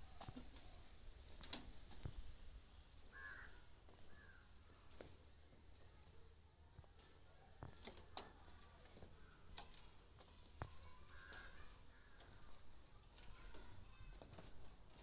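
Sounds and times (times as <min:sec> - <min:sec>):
small clicks and taps: 0:00.2 - 0:02.2, 0:03.9 - 0:15.0
faint bird calls: 0:03.0 - 0:05.0.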